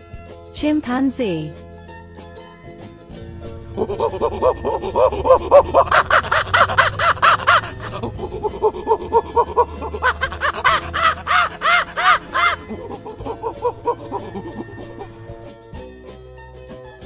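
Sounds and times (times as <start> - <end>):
background music: 0.0 - 17.0
chimpanzee hooting: 3.3 - 15.5.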